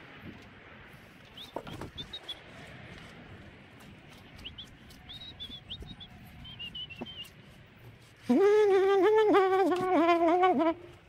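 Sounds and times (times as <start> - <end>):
small bird chirping: 4.3 - 7.4.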